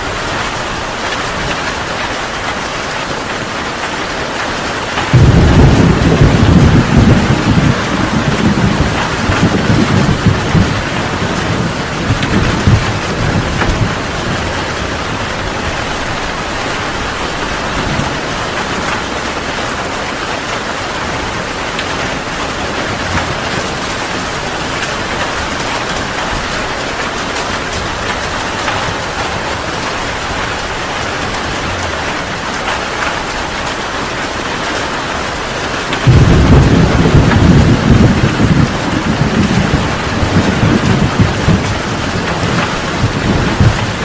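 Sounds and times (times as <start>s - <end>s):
heavy rain falling: 0.0s - 44.0s
low thunder rumble: 5.1s - 19.2s, 21.0s - 33.0s, 36.0s - 44.0s.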